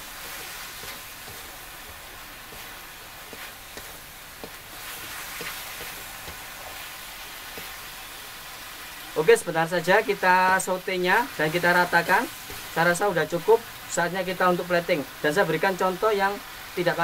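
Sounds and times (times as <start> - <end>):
spatula scraping a wok: 0.0 - 8.2
beef sizzling in a wok: 0.0 - 17.0.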